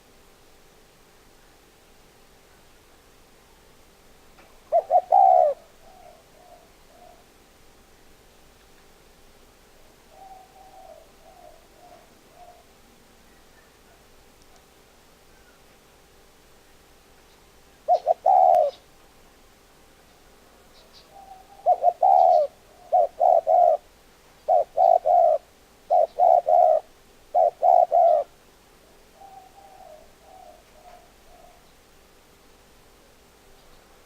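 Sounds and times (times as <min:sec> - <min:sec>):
dove cooing: 0:04.6 - 0:07.4, 0:09.8 - 0:14.1, 0:17.8 - 0:18.9, 0:20.5 - 0:31.7.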